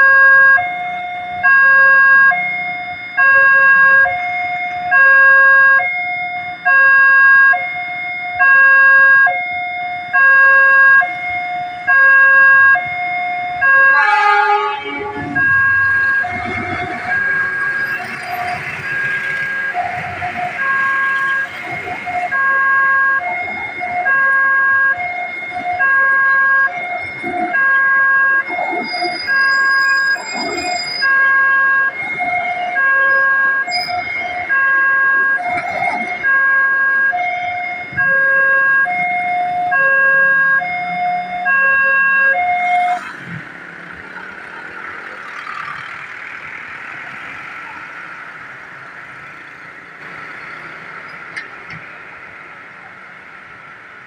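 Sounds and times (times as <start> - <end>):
level crossing two-tone alarm: 0.0 - 43.0
train passing rushing noise: 14.0 - 22.3.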